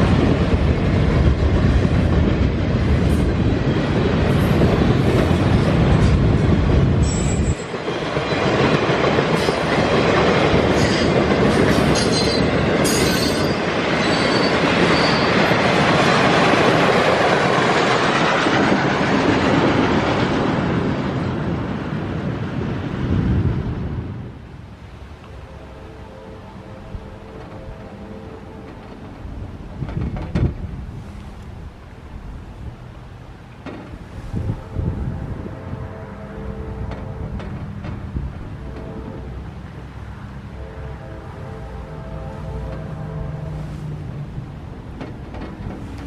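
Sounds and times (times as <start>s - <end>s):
train wheels rumbling on rails: 0.0s - 46.0s
high-pitched wheel squeals: 12.0s - 15.4s.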